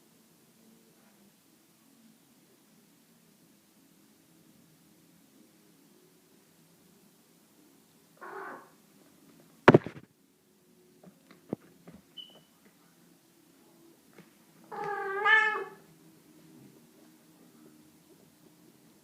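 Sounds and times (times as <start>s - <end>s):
cat meowing: 8.2s - 8.7s, 14.7s - 15.9s
loud thump: 9.7s - 10.0s.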